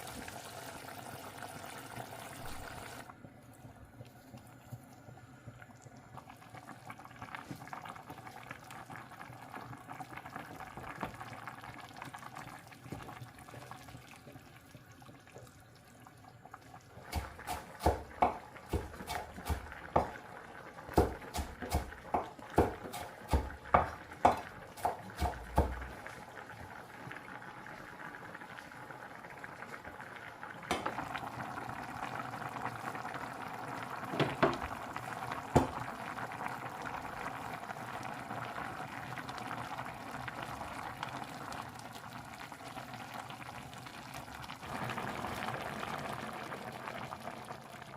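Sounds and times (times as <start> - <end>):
liquid bubbling: 0.0 - 47.9.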